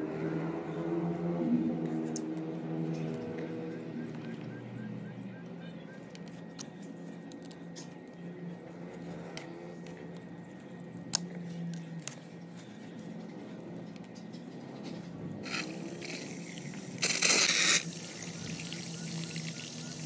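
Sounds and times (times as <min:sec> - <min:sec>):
water running through hose: 0:15.4 - 0:20.0.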